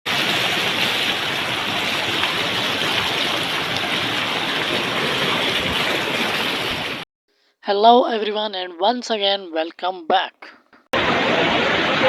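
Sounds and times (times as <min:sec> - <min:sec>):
floodwater rushing: 0:00.1 - 0:07.0, 0:11.0 - 0:12.0.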